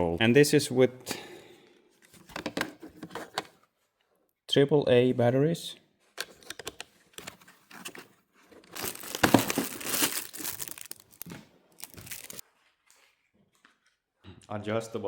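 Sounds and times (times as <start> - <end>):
plastic packaging crinkling: 8.6 - 12.4.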